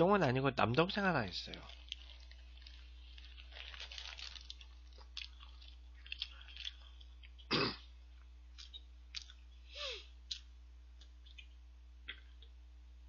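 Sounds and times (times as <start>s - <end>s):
person chewing: 1.5s - 12.6s
cough-like throat sound: 7.5s - 7.9s
wet mouth clicks and smacks: 8.6s - 9.4s, 10.3s - 11.5s.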